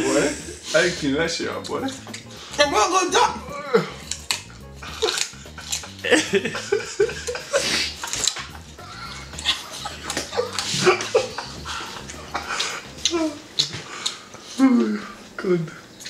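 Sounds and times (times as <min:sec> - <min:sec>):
mouth sounds: 0:01.6 - 0:15.2
carrot crunching while chewed: 0:03.9 - 0:06.0, 0:07.8 - 0:14.4.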